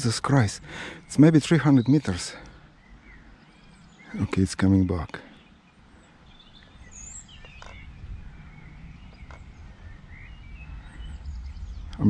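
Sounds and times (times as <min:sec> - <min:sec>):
birds chirping and calling: 0:00.0 - 0:12.0
low rumbling background noise: 0:00.0 - 0:12.0.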